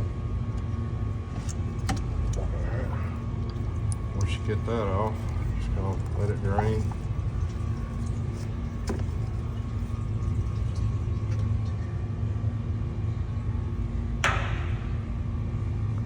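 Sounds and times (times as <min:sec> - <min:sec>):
machinery hum: 0:00.0 - 0:16.0
sharp ringing knock: 0:14.2 - 0:15.0.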